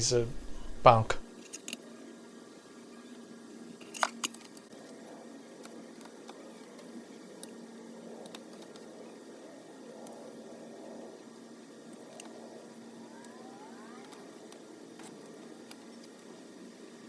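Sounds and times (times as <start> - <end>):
steady low hum: 0.0 - 1.3, 4.7 - 17.0.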